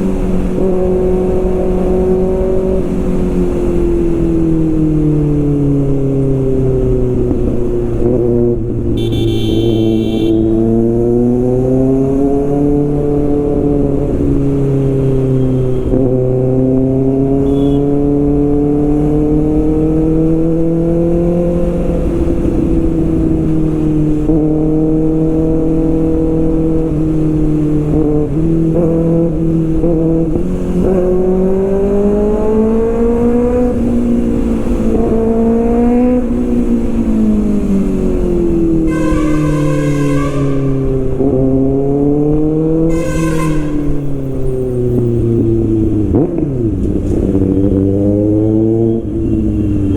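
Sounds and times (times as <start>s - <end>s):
low wind rumble: 0.0s - 17.3s
motorcycle engine and exhaust: 0.0s - 49.9s.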